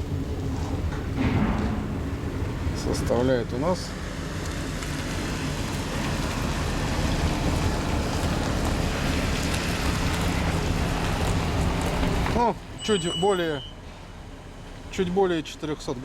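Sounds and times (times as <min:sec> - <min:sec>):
wood fire roaring in stove: 0:00.0 - 0:12.8.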